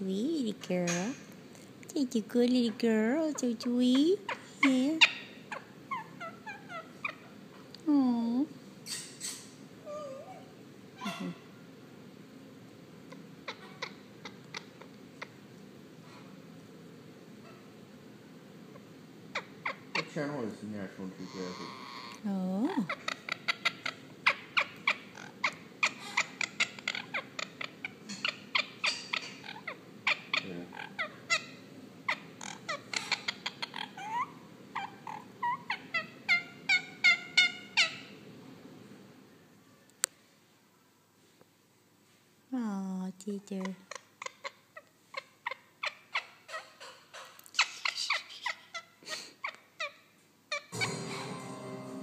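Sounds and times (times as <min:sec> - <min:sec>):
parakeet chirping: 0:02.6 - 0:07.4, 0:13.1 - 0:15.4, 0:18.8 - 0:20.4, 0:21.2 - 0:38.2, 0:43.6 - 0:52.0.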